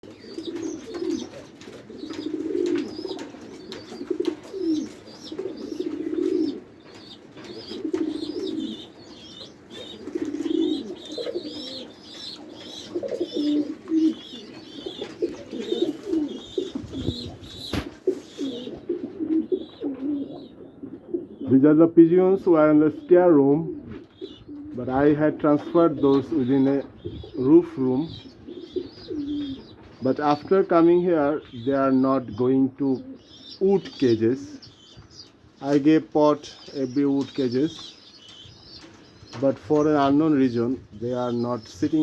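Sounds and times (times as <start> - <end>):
high chirping calls: 0.0 - 21.6, 24.0 - 42.0
pigeons cooing: 0.0 - 21.8, 22.7 - 42.0
sharp knock: 17.7 - 18.0.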